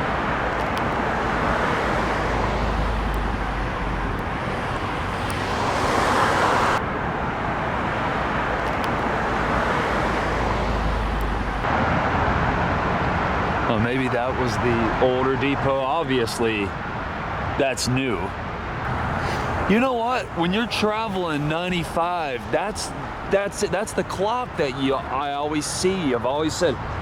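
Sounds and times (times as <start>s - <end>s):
vehicle passing close: 0.0s - 15.7s
road traffic noise: 0.0s - 27.0s.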